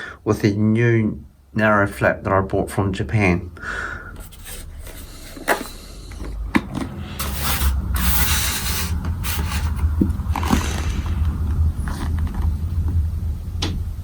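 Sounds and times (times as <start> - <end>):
low hum: 3.0 - 14.0
rustling scrape: 4.2 - 12.3.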